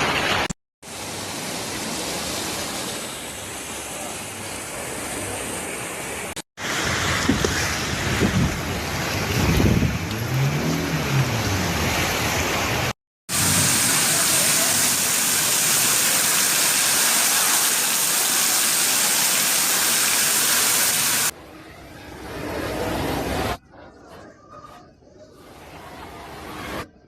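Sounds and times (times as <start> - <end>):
rushing water: 0.0 - 21.4
rushing wind: 6.6 - 14.1.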